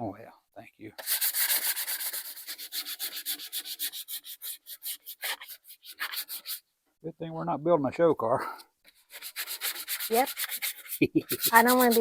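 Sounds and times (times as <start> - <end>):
hand sanding strokes: 1.0 - 6.6, 8.9 - 12.0.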